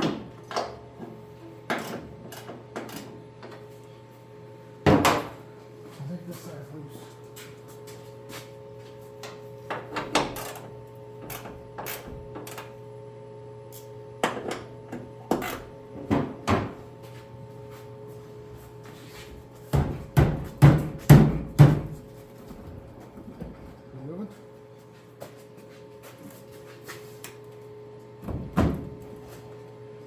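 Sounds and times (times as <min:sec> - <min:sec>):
knocks on steel car hood: 0:19.8 - 0:22.0.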